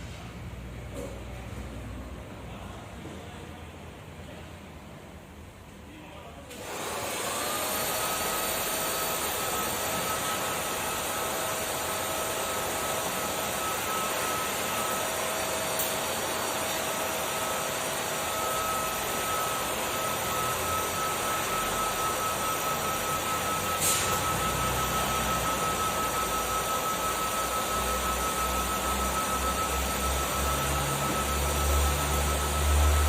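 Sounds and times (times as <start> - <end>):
vacuum cleaner running: 6.5 - 33.0.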